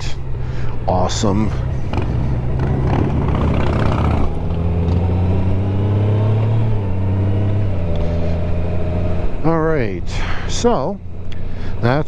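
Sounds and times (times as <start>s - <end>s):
motorcycle engine revving: 0.8s - 9.6s.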